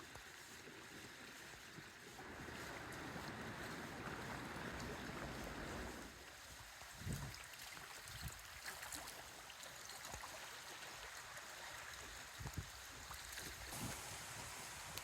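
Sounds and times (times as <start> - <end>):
wind buffeting microphone: 2.2 - 6.1, 7.0 - 7.4.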